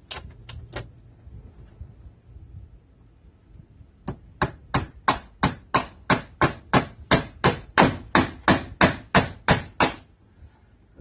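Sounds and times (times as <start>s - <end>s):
hammer driving a nail: 4.0s - 10.1s
high metallic ring: 6.6s - 10.4s.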